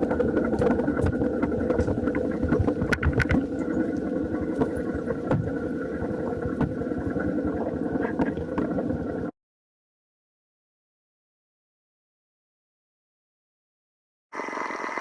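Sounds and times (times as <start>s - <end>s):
small motorcycle engine running: 14.4s - 15.0s.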